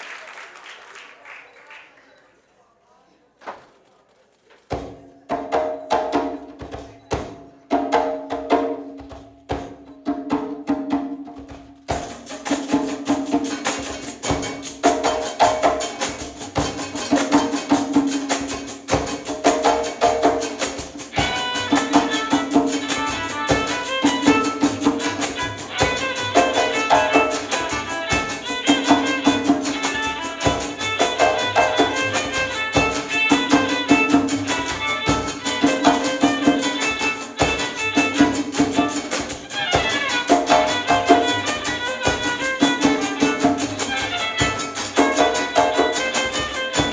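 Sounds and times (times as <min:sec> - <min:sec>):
frame drums with jingles: 0:04.7 - 0:46.9
quick high melody: 0:13.5 - 0:46.9.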